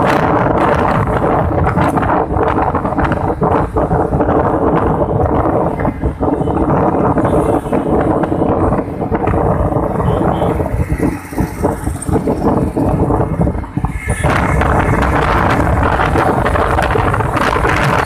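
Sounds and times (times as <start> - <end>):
motorcycle engine running: 0.0 - 18.0
wind buffeting microphone: 0.0 - 18.0.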